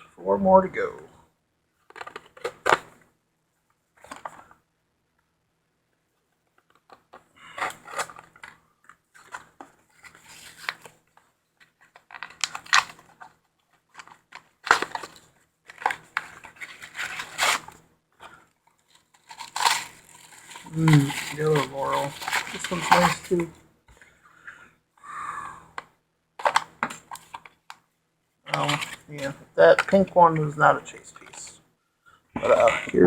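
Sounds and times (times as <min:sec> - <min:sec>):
packaging tearing and crinkling: 0:09.2 - 0:10.9, 0:11.9 - 0:13.2, 0:13.9 - 0:17.8, 0:18.9 - 0:23.5, 0:26.4 - 0:27.5, 0:28.5 - 0:30.1.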